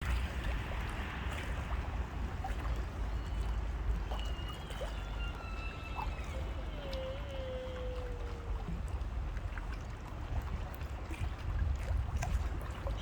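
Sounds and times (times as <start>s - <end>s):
low rumble: 0.0s - 9.4s
river water wash: 0.0s - 13.0s
faint thin whistling tones: 2.9s - 8.1s.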